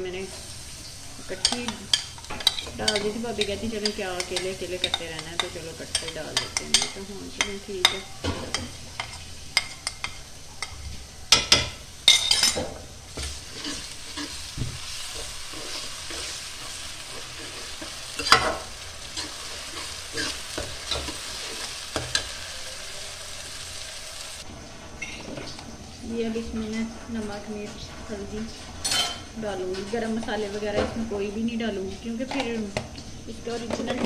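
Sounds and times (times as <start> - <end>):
vegetables sizzling in a pan: 0.0 - 34.0
metal spoon scraping a pan: 1.2 - 10.8, 11.4 - 23.6.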